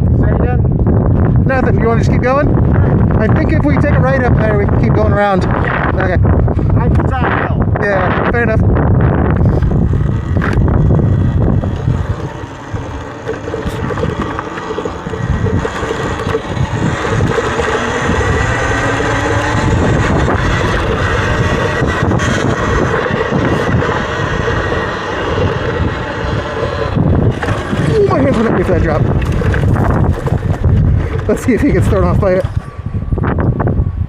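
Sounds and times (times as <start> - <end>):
wind buffeting microphone: 0.0 - 34.0
electric motor whine: 8.1 - 34.0
knocks over rough ground: 26.9 - 32.6.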